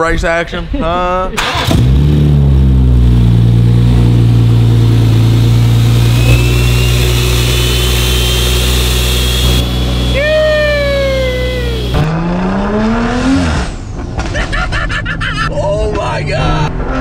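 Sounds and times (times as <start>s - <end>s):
car engine idling: 1.4s - 12.0s
faint high whistle: 6.0s - 12.0s
long falling vocal shout: 10.0s - 12.0s.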